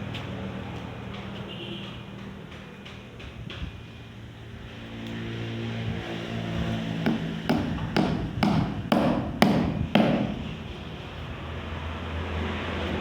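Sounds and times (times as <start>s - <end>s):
tool knocking on bamboo: 7.0s - 10.5s.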